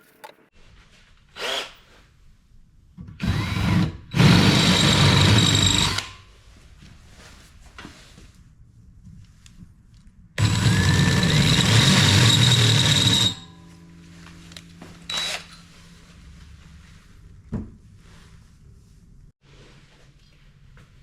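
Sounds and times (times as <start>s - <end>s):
handheld power tool running: 3.2s - 6.1s, 10.4s - 13.5s, 15.1s - 15.6s.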